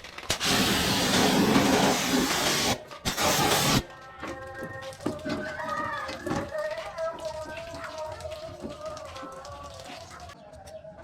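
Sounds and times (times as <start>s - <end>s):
high-pressure water spray hissing: 0.3s - 3.9s.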